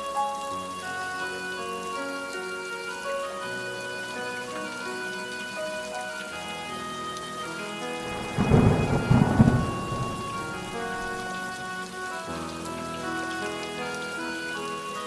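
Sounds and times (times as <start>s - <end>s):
soft background music: 0.0s - 15.0s
steady rain: 0.0s - 15.0s
thunderclap rumble: 8.0s - 11.7s.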